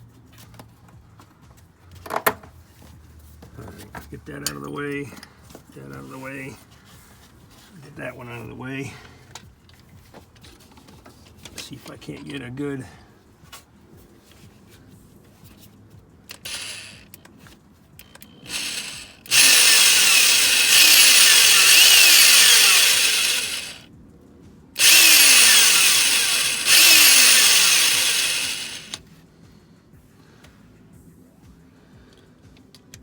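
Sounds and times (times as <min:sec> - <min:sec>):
power drill running: 0:16.3 - 0:17.0, 0:18.4 - 0:23.8, 0:24.8 - 0:29.0.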